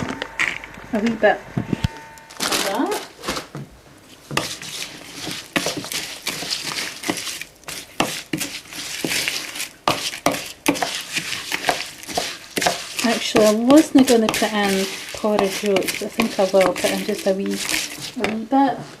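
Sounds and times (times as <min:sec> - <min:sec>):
spoon scraping in a bowl: 0:04.4 - 0:18.4.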